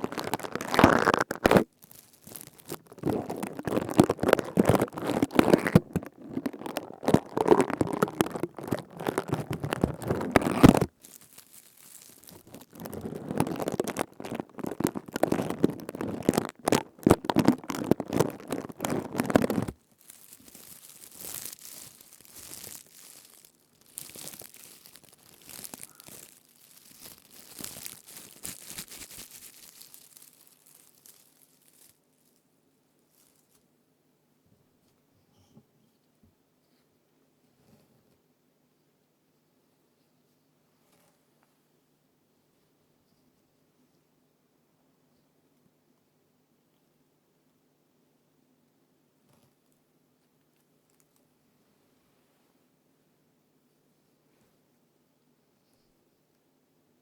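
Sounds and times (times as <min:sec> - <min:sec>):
leaves crackling and crinkling: 0:00.0 - 0:32.4, 0:33.1 - 0:33.6
soft leaf rustling: 0:00.0 - 0:32.4.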